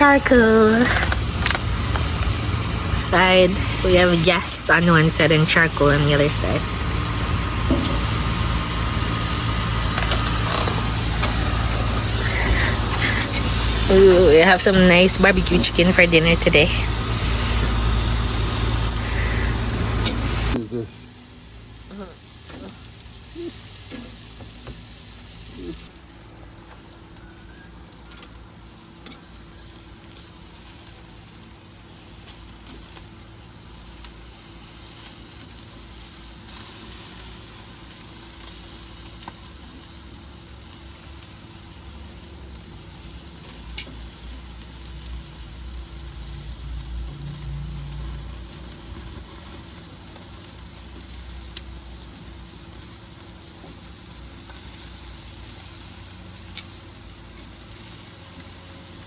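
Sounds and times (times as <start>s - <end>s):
chicken sizzling on a grill: 0.0s - 59.0s
sharp pops from grill: 37.1s - 39.9s, 42.9s - 45.2s, 56.4s - 57.8s.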